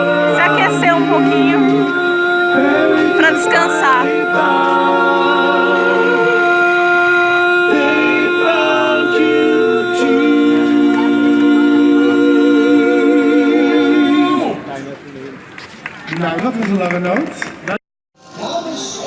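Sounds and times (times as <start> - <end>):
voices singing in harmony: 0.0 - 14.8.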